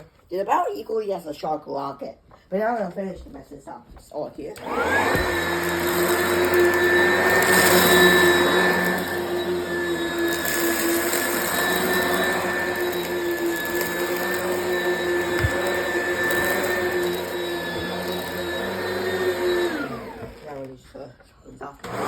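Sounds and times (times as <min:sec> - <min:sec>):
vacuum cleaner running: 0:04.4 - 0:20.8, 0:21.7 - 0:22.0
vacuum motor winding down: 0:04.6 - 0:20.8, 0:21.8 - 0:22.0.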